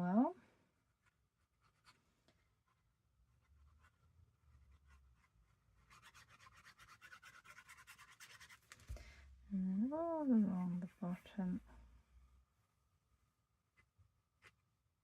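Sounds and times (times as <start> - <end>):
glue spread on paper scratching: 2.6 - 8.8.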